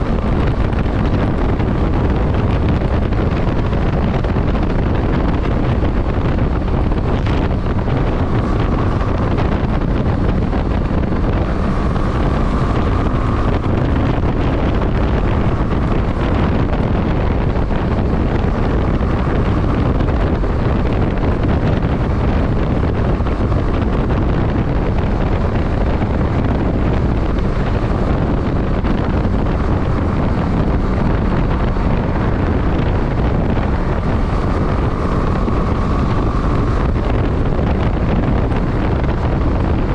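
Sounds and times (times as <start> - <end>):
motorcycle running: 0.0 - 39.9
wind rushing over microphone: 0.0 - 39.9.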